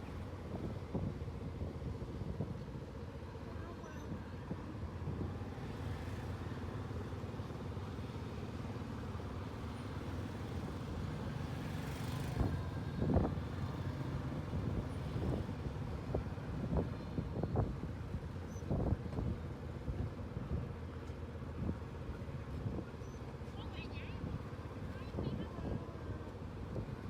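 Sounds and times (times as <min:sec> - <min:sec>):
motor vehicle rumbling: 0:00.0 - 0:27.0.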